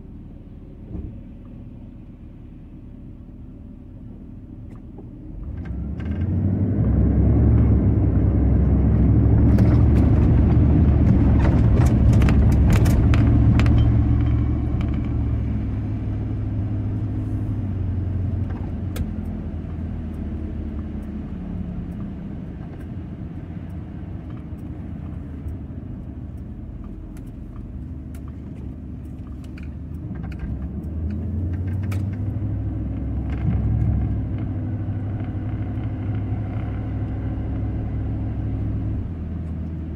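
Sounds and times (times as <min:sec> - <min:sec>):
vehicle engine rumbling: 0:00.0 - 0:39.9
sharp clicks and rattles: 0:09.4 - 0:15.5, 0:23.7 - 0:37.2.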